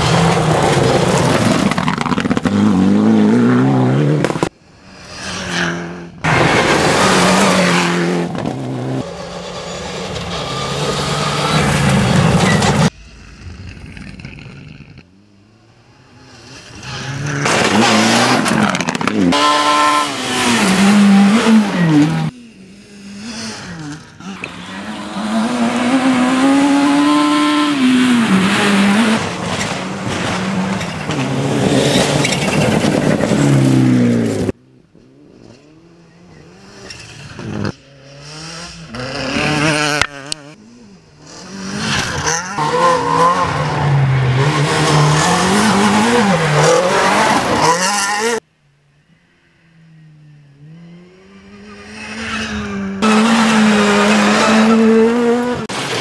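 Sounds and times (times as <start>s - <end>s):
rally car engines revving past: 15.6s - 48.4s, 50.0s - 56.0s.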